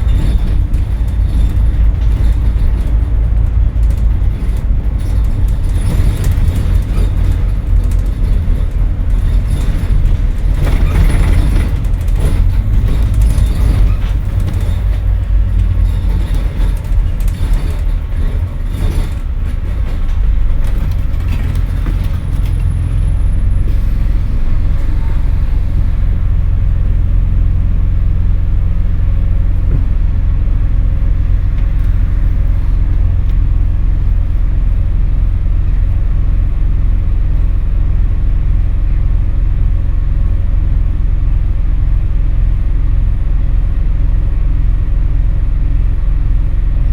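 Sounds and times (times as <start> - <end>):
bus body rattling: 0.0 - 46.9
bus diesel engine drone: 0.0 - 46.9.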